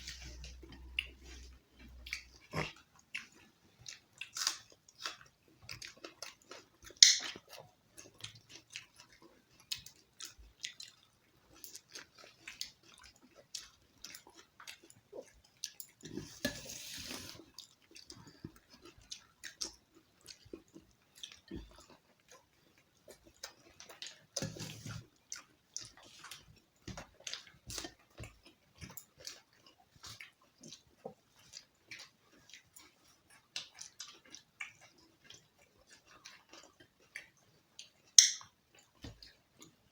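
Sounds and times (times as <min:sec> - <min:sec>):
people chewing food: 0:00.0 - 0:39.9
wet mouth clicks: 0:07.0 - 0:07.4, 0:38.2 - 0:38.5.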